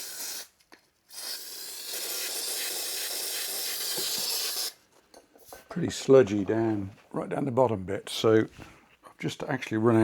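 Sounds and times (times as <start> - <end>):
aerosol spray hissing: 1.1 - 4.8.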